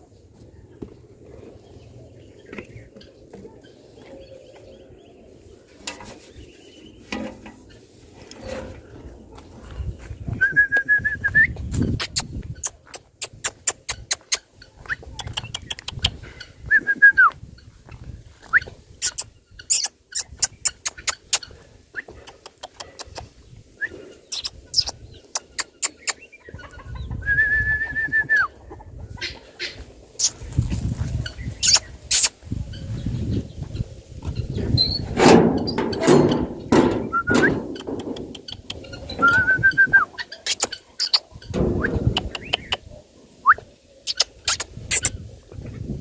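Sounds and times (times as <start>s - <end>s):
birds whistling calls: 18.3s - 22.2s, 23.7s - 28.6s, 29.3s - 30.5s, 31.3s - 42.8s
low thumps: 41.5s - 42.5s
sharp clicks: 44.1s - 45.1s.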